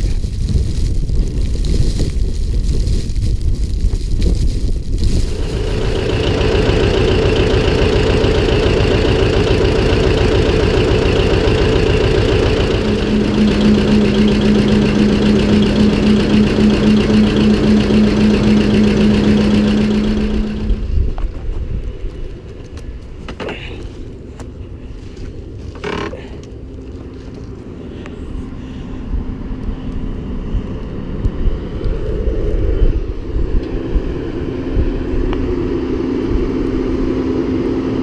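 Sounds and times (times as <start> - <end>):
engine running: 0.0 - 38.0
steady hum: 5.2 - 26.0, 26.6 - 38.0.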